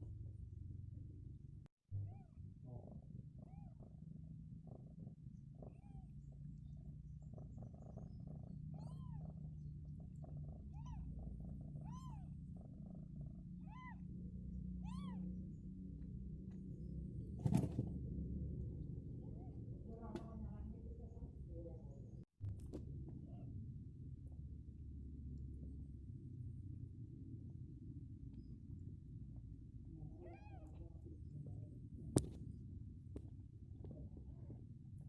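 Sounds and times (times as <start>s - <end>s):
cat purring: 2.1s - 22.2s, 23.0s - 35.0s
kittens mewing: 3.4s - 3.9s, 8.7s - 9.4s, 10.2s - 13.0s, 13.6s - 14.2s, 14.8s - 15.3s, 30.0s - 31.0s.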